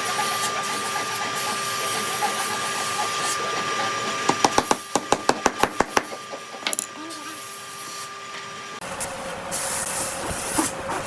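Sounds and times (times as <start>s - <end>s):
rapid sharp knocks: 4.3s - 6.2s.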